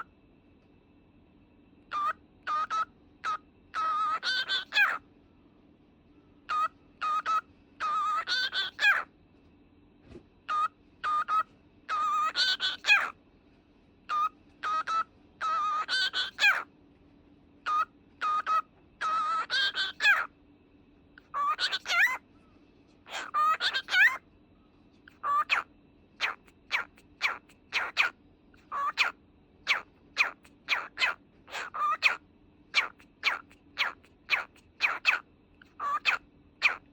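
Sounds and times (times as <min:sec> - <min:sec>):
cockatiel whistling: 0:01.9 - 0:05.0, 0:10.5 - 0:13.1, 0:14.1 - 0:16.6, 0:17.7 - 0:20.3, 0:21.3 - 0:22.2, 0:26.2 - 0:36.9.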